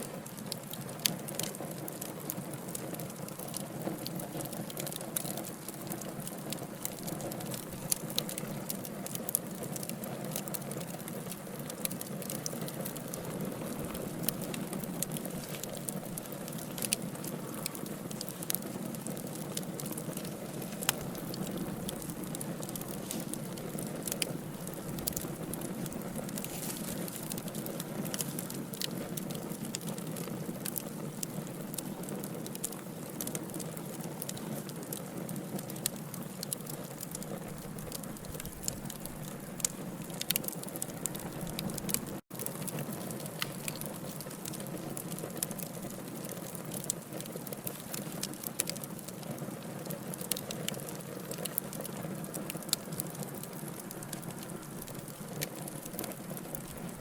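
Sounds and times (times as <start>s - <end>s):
fire flames rumbling: 0.0s - 57.0s
logs crackling and popping: 0.0s - 57.0s.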